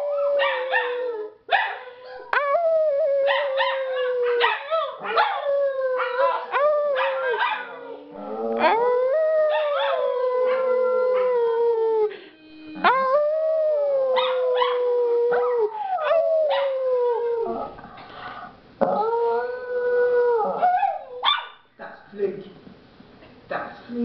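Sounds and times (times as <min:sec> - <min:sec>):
dogs howling: 0:02.0 - 0:12.1, 0:12.8 - 0:17.8, 0:18.8 - 0:21.3.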